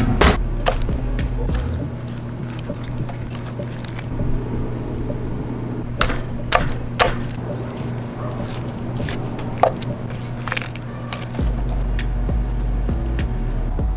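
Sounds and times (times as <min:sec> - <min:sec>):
deeper hum: 0:00.0 - 0:13.9
steady low hum: 0:00.0 - 0:13.9
sharp clicks and knocks: 0:06.0 - 0:12.2.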